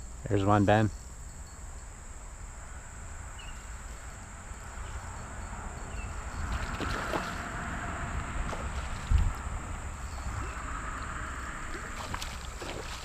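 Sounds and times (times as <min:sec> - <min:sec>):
crickets droning: 0:00.0 - 0:13.0
wind rumble on microphone: 0:00.0 - 0:13.0
water splashing and sloshing: 0:06.4 - 0:13.0.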